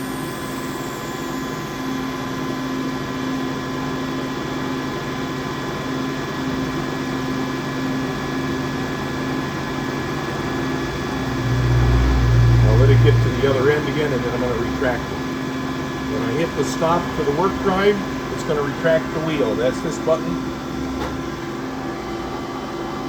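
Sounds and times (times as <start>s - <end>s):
grinder motors humming with whines: 0.0s - 23.0s
low pulsing hum: 10.4s - 22.7s.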